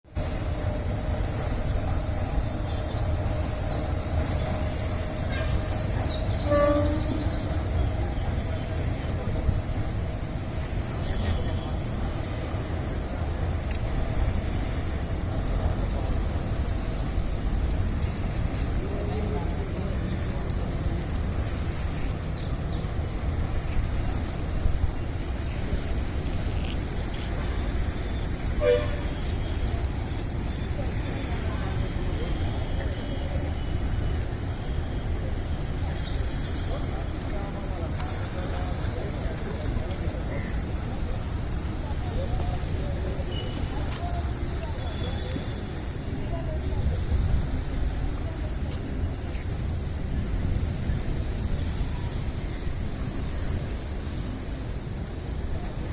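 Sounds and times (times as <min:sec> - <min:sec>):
train rumbling: 0:00.0 - 0:55.9
train horn blast: 0:05.2 - 0:07.6, 0:28.5 - 0:29.3
vehicle horn toot: 0:06.4 - 0:07.2, 0:28.6 - 0:29.1.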